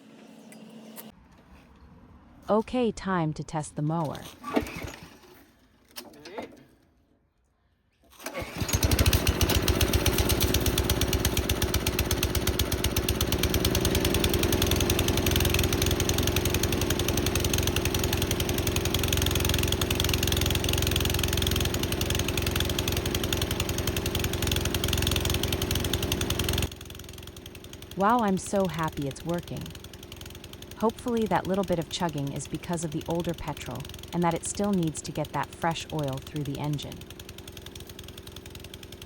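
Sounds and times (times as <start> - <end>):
lawn mower engine chugging: 8.1 - 39.0.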